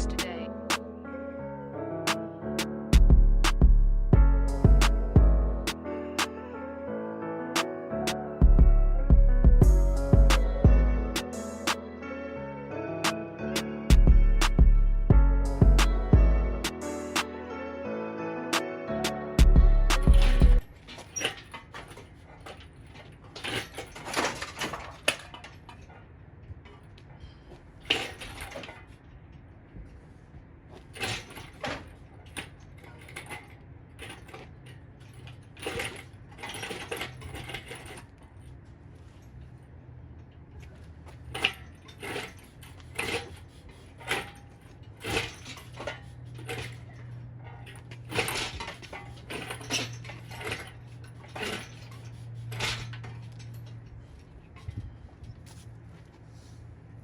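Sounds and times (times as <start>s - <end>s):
low steady hum: 19.1s - 20.8s
metal tools clinking: 20.0s - 26.0s, 30.8s - 38.6s, 40.6s - 55.7s.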